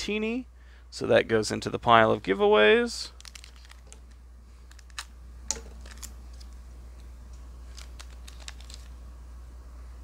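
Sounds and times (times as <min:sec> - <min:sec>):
steady low hum: 0:00.0 - 0:10.0
trading cards clicking and rustling: 0:03.1 - 0:06.6, 0:07.6 - 0:09.0.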